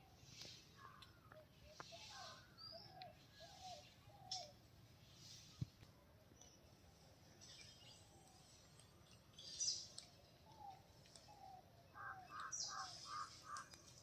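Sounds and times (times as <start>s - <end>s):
birds whistling: 1.7s - 4.6s, 9.3s - 13.8s.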